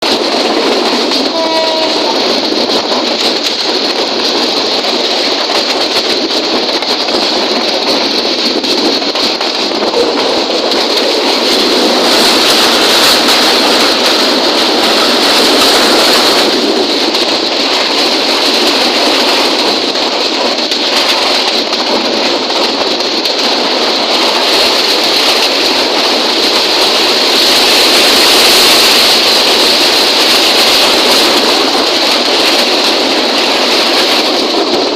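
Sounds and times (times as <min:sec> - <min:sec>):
train rushing on rails: 0:00.0 - 0:34.9.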